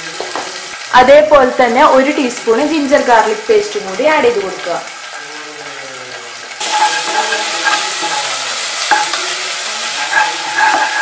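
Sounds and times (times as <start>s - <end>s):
vegetables sizzling in hot oil: 0.0s - 11.0s
spatula knocking against pan: 6.6s - 9.2s, 10.0s - 11.0s
wooden spatula scraping pot: 6.6s - 11.0s.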